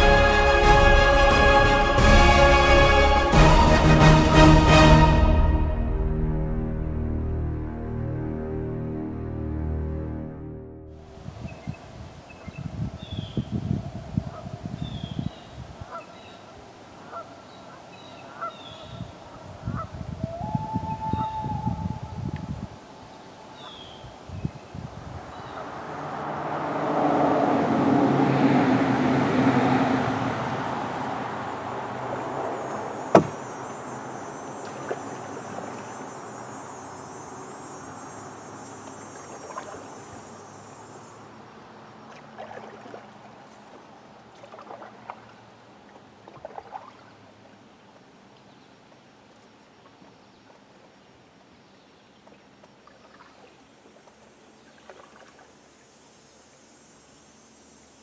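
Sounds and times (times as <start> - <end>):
vehicle engine passing: 25.1 - 36.8
sharp knock: 33.1 - 33.4.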